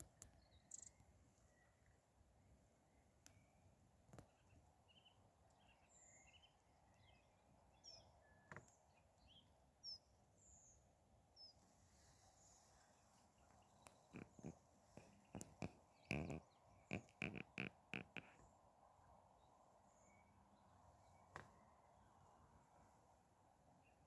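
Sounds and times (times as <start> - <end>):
faint songbird calls: 0.0 - 2.0, 2.8 - 22.5.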